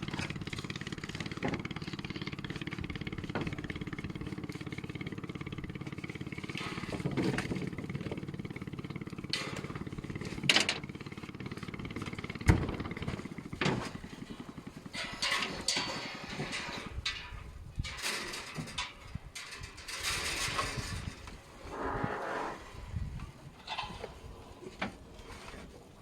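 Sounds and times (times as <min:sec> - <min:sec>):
small engine running: 0:00.0 - 0:17.4
clattering: 0:12.0 - 0:21.4.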